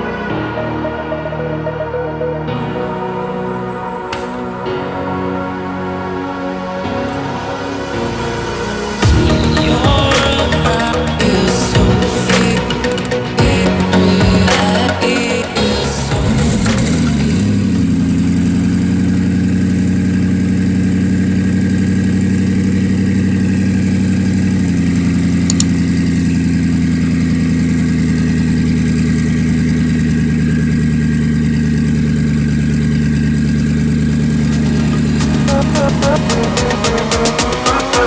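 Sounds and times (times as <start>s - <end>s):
car engine idling: 8.0s - 38.0s.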